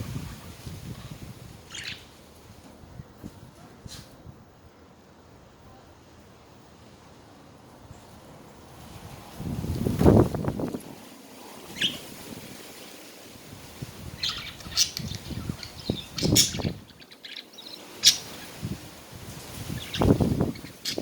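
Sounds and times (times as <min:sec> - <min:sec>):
budgerigars chirping: 0:01.7 - 0:02.1, 0:14.2 - 0:18.5
wings fluttering: 0:08.9 - 0:21.0.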